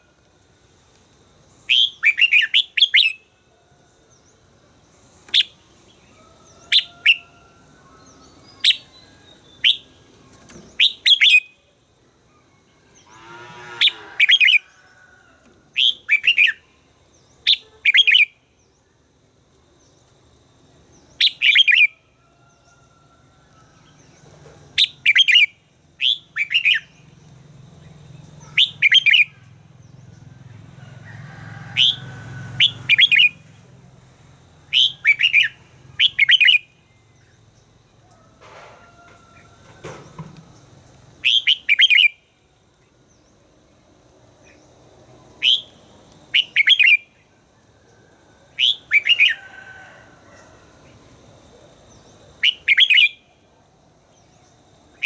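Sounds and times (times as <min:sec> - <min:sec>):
bird calling sharp notes: 0:28.4 - 0:29.4, 0:34.7 - 0:36.7.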